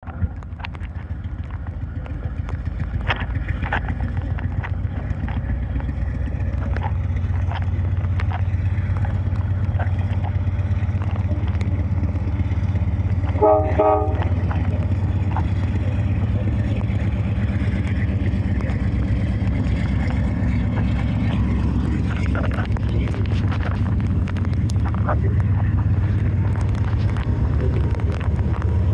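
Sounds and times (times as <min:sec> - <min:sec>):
diesel locomotive rumbling: 0:00.0 - 0:28.9
scattered clicks: 0:00.1 - 0:28.9
locomotive horn toots: 0:13.1 - 0:16.3.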